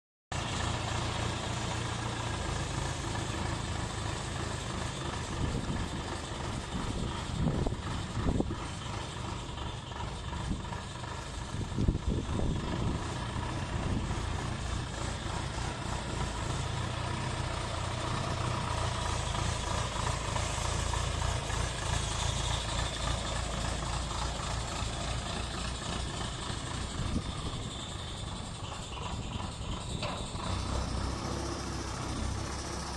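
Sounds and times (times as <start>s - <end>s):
truck engine running: 0.3s - 32.9s.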